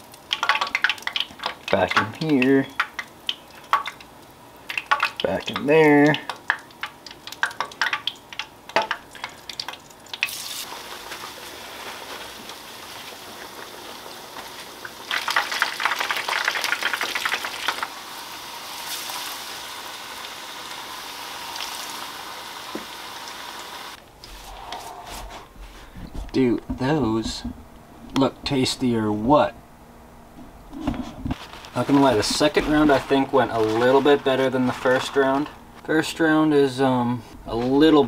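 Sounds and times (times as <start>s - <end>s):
fish frying sizzle: 0.0s - 24.0s
crackling: 30.4s - 36.0s.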